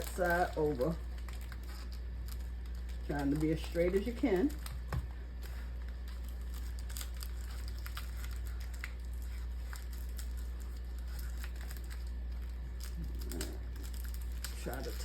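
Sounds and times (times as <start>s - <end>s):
paper rustling: 0.0s - 15.0s
steady low hum: 0.0s - 15.0s
small ticks of paper folding: 5.4s - 15.0s.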